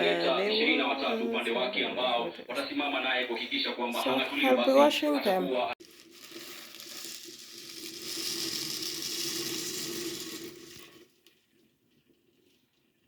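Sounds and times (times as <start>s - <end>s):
water pouring: 5.8s - 13.0s.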